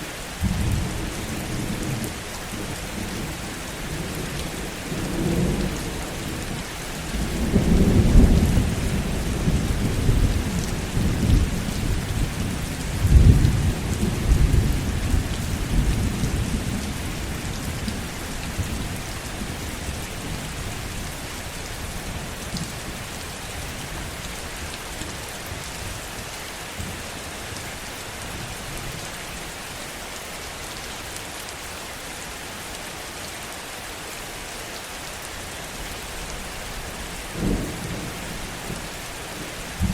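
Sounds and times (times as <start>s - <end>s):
heavy rain: 0.0s - 39.9s
rolling thunder: 7.0s - 18.0s, 37.4s - 39.9s.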